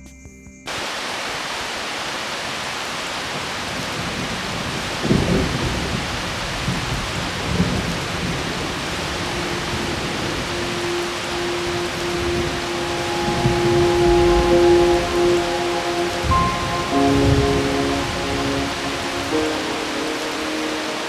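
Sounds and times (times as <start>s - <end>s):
heavy rain: 0.7s - 21.0s
thunder rumbles: 3.8s - 21.0s
steady low tone: 9.1s - 21.0s.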